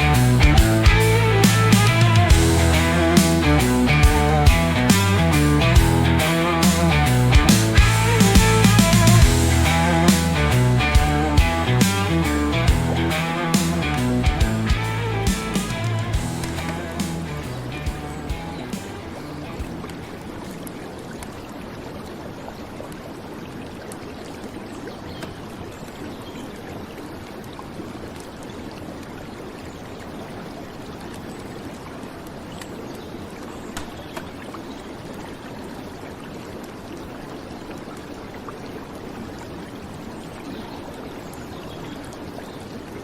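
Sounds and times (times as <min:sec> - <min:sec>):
river water rushing: 0:00.0 - 0:24.8.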